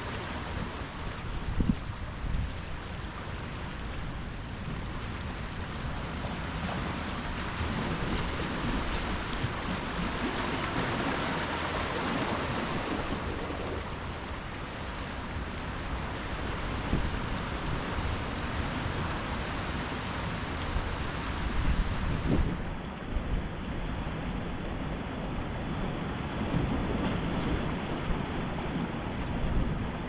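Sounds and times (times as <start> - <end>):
waves breaking on shore: 0.0 - 30.0.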